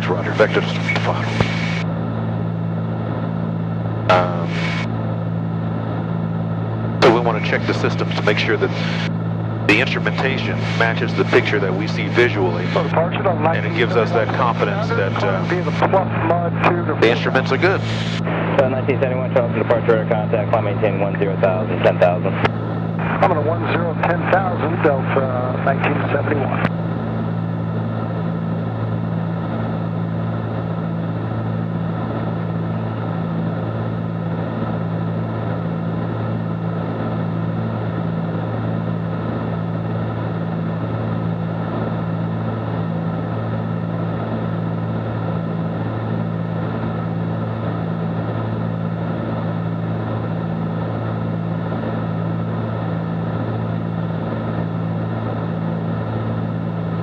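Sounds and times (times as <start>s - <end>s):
propeller aircraft engine drone: 0.0s - 57.0s.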